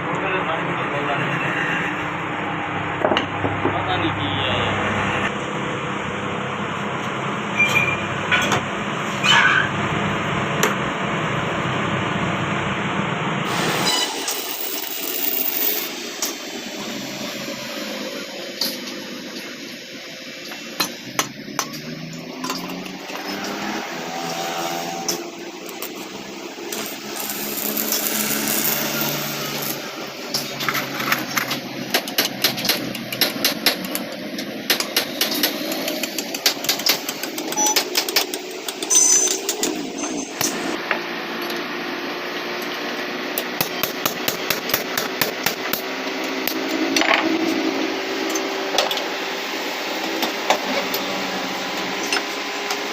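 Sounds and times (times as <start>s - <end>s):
small machine humming: 13.7s - 31.5s.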